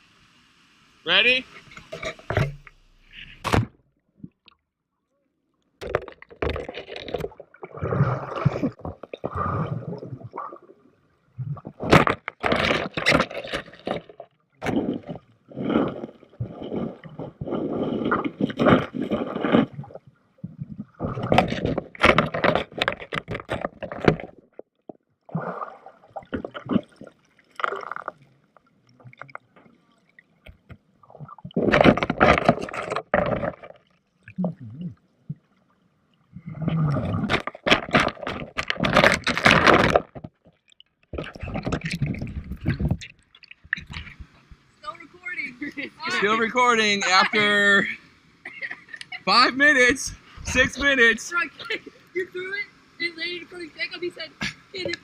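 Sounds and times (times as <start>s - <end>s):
muffled water gurgling and sloshing: 5.8s - 47.2s.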